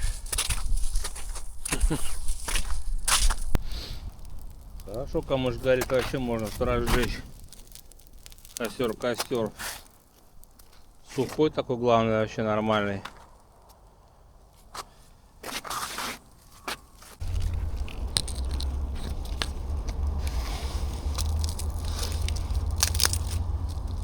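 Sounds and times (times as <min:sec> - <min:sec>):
dry reeds crackling in fire: 0:00.0 - 0:24.0
steady low rumble: 0:17.2 - 0:24.0.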